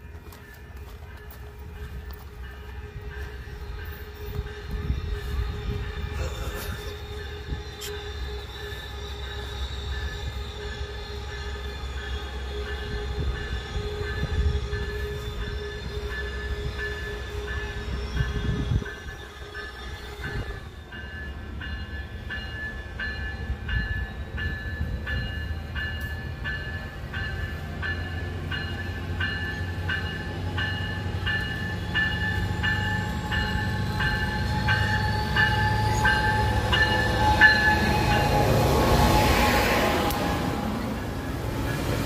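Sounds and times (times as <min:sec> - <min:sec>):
diesel locomotive engine rumble: 0:00.0 - 0:42.0
train rushing past: 0:00.0 - 0:42.0.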